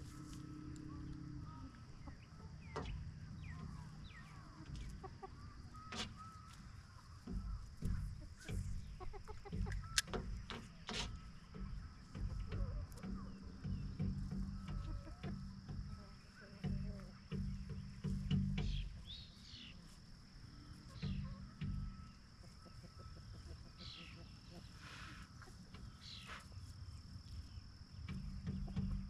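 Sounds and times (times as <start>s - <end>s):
chickens clucking: 0.0s - 29.0s
sharp clicks: 9.5s - 11.2s.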